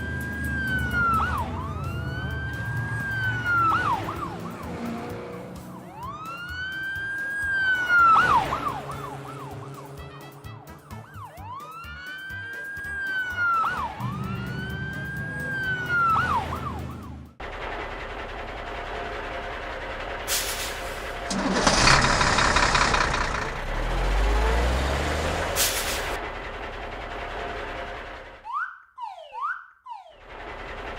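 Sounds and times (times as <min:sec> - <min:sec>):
police siren wailing and yelping: 0:00.0 - 0:17.4, 0:28.4 - 0:30.3
noisy rumble: 0:21.1 - 0:24.2.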